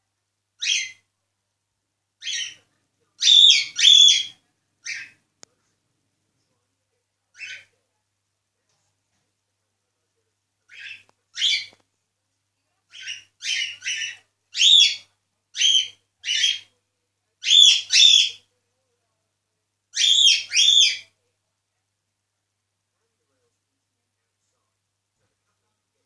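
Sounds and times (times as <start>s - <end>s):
cockatiel whistled chirps: 20.0s - 21.0s.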